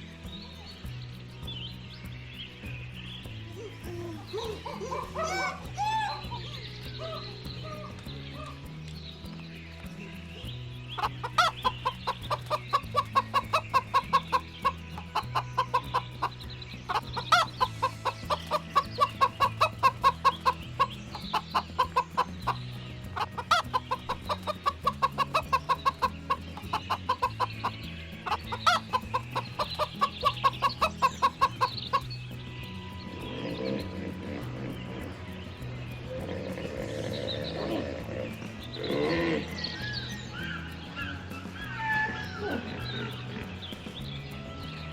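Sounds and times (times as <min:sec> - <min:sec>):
background music: 0:00.0 - 0:44.9
chicken clucking: 0:11.0 - 0:32.1.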